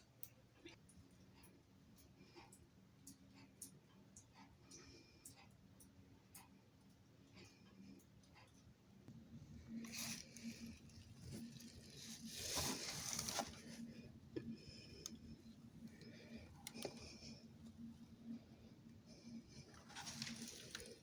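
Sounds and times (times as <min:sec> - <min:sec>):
low steady hum: 0:00.0 - 0:21.0
faint rustling: 0:09.7 - 0:14.0, 0:19.2 - 0:21.0.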